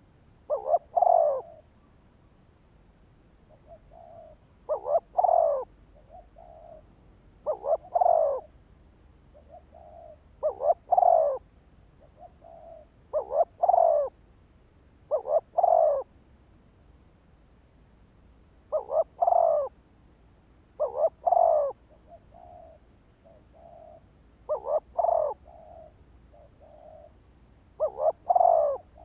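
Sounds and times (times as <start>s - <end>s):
dove cooing: 0.0s - 1.7s, 3.5s - 8.6s, 9.3s - 14.2s, 15.1s - 16.1s, 18.7s - 19.8s, 20.8s - 29.0s.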